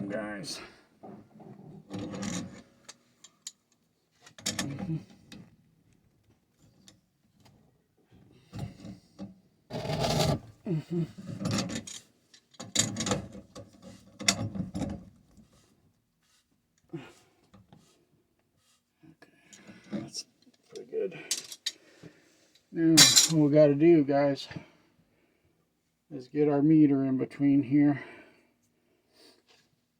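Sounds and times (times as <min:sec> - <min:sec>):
metal grinding and creaking on threads: 0:09.7 - 0:10.4.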